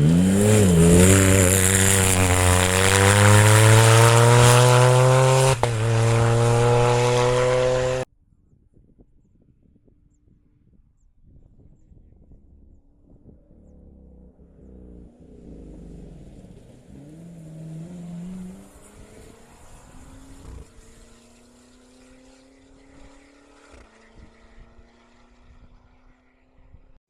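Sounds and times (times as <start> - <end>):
car engine revving: 0.0 - 8.1, 14.4 - 26.6.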